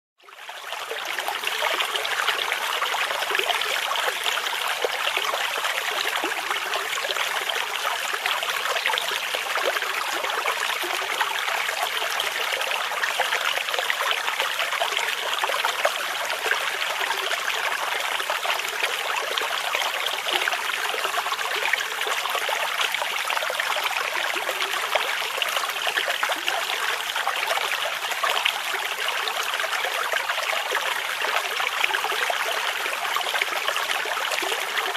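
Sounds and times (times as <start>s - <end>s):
stream babbling over stones: 0.5s - 34.9s.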